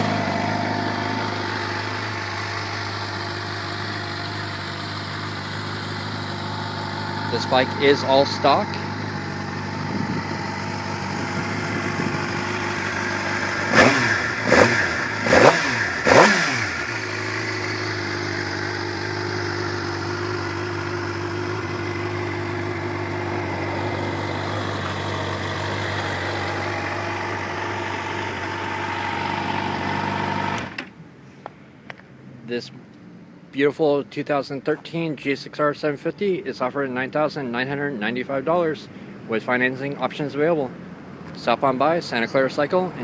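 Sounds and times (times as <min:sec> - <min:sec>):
motorcycle engine idling and revving: 0:00.0 - 0:30.9.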